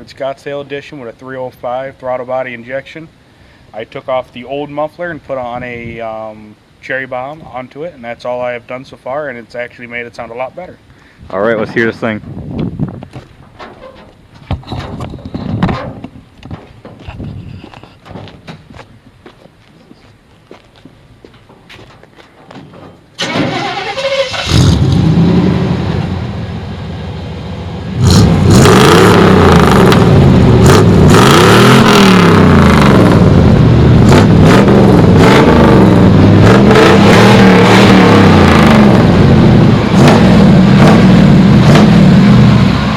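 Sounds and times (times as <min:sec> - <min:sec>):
engine cranking and starting: 0:23.1 - 0:25.0
engine idling and revving: 0:23.2 - 0:42.9.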